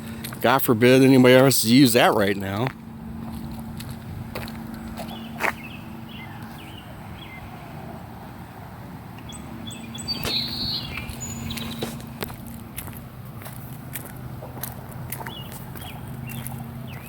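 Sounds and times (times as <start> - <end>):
steady low hum: 0.0 - 17.0
birds chirping: 4.0 - 8.2, 9.1 - 12.8, 14.3 - 17.0.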